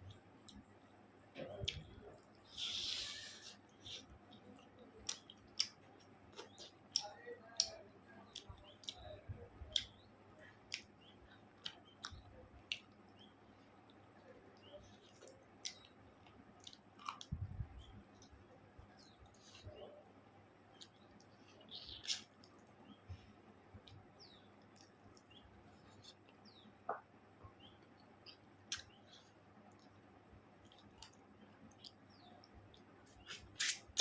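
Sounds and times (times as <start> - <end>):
person chewing food: 2.4 - 7.7, 9.7 - 19.7, 20.6 - 22.8, 27.9 - 30.0, 30.6 - 34.0.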